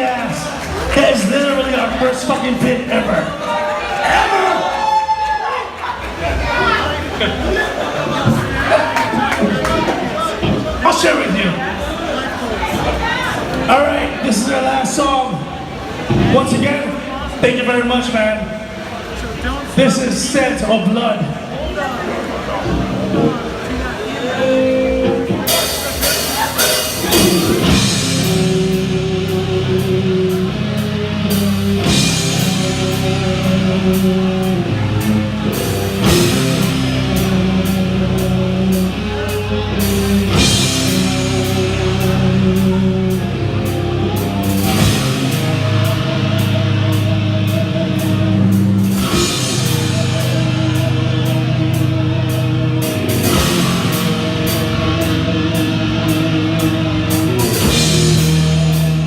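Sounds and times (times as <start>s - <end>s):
distorted electric guitars: 6.0s - 17.4s, 22.2s - 59.0s
bass riffing: 6.0s - 20.8s, 22.2s - 59.0s
fast drumming on drum kit: 25.3s - 59.0s.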